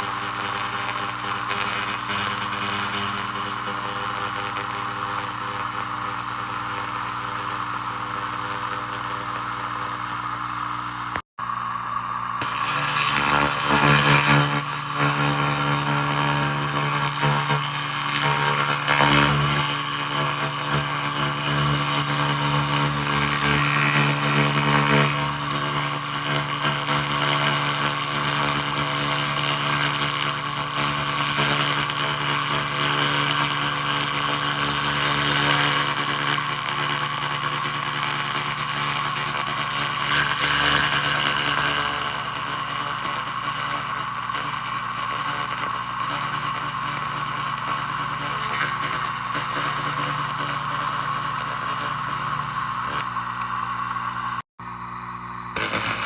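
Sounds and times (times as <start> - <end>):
laser hissing on rust: 12.2 - 54.4, 55.6 - 56.0.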